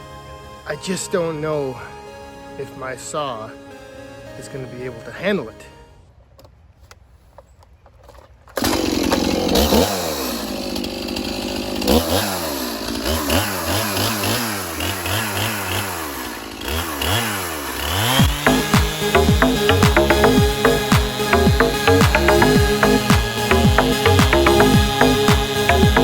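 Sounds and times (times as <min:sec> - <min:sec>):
chainsaw revving while cutting: 0:08.6 - 0:26.0.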